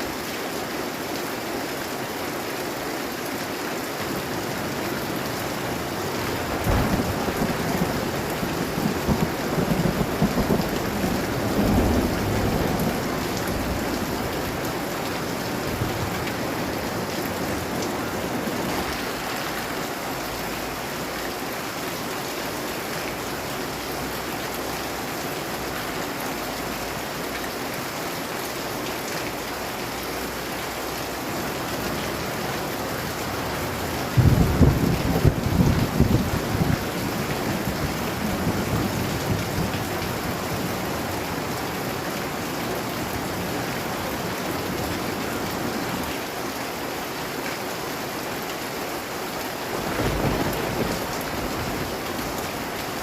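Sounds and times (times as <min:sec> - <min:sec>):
heavy rain: 0:00.0 - 0:53.0
thunder rolling: 0:06.3 - 0:14.0, 0:34.2 - 0:36.9, 0:49.8 - 0:52.0.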